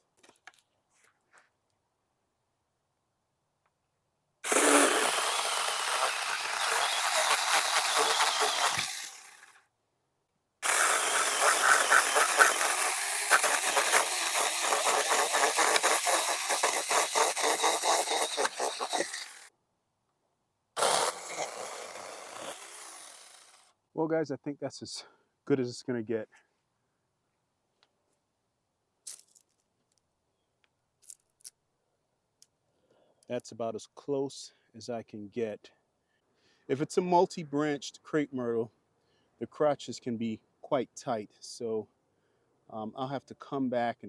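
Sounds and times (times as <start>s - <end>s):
electric chainsaw cutting wood: 4.4s - 9.6s, 10.6s - 19.5s, 20.8s - 23.7s.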